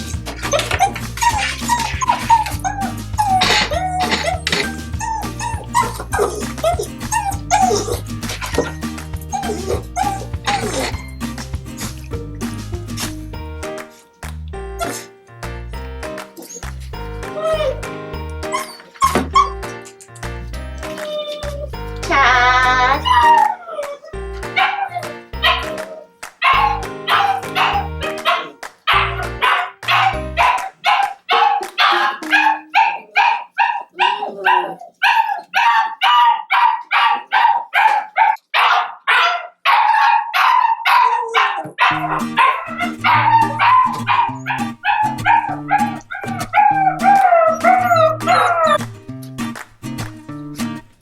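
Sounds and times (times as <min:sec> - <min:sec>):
background music: 0:00.0 - 0:38.3, 0:39.7 - 0:51.0
puppy barking and yipping: 0:00.2 - 0:11.1, 0:16.3 - 0:19.8, 0:20.8 - 0:48.9.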